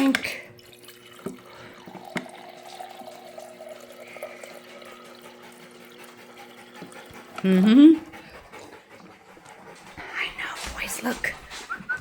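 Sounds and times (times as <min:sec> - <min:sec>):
water running from a tap: 0:00.0 - 0:07.9.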